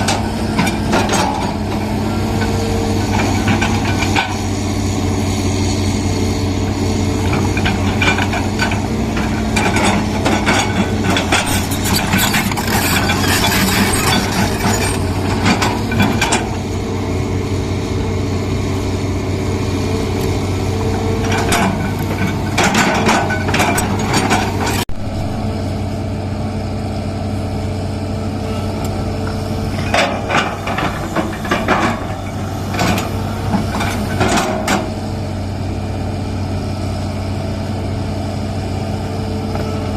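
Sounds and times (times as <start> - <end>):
diesel excavator engine running: 0.0 - 39.9
metallic clanking and scraping: 7.3 - 16.6, 21.2 - 24.9, 29.7 - 35.0.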